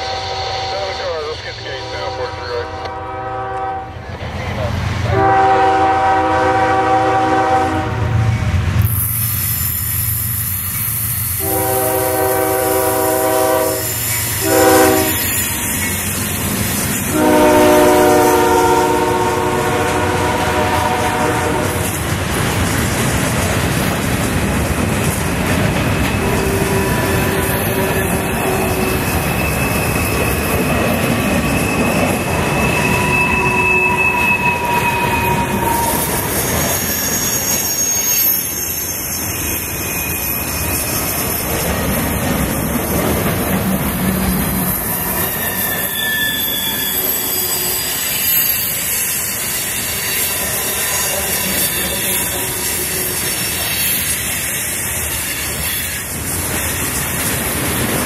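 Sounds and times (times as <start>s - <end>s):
steel wheels rumbling on rail: 0.0s - 58.0s
wheels squealing: 13.8s - 17.0s, 25.6s - 42.2s, 42.8s - 57.0s.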